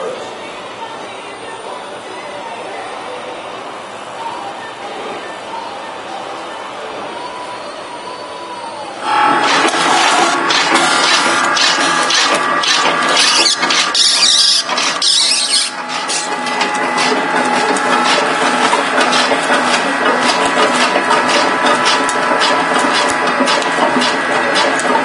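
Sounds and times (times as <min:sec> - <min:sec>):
slicer machine whining: 0:07.2 - 0:25.0.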